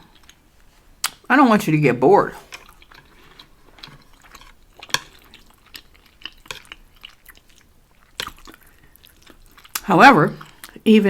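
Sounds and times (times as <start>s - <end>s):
soft chewing: 0.0s - 1.3s, 2.2s - 11.0s
mouth clicks and smacks: 1.0s - 1.3s, 2.5s - 10.8s.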